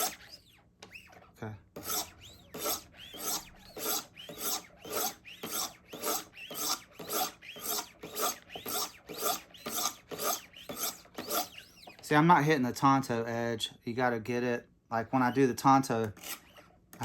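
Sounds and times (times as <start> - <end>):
sharpening stone scraping knife: 1.8 - 11.8.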